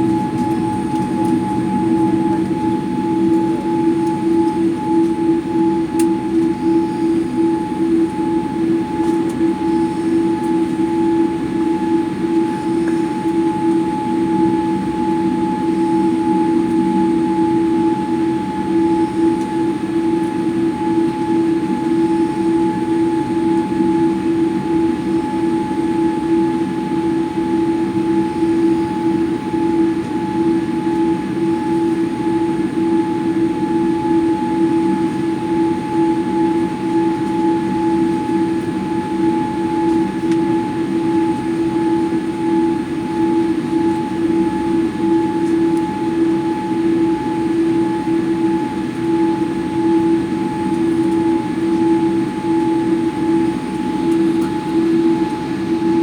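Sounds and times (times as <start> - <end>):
jet engines humming: 0.0 - 21.2
cabin air system whine: 0.0 - 56.0.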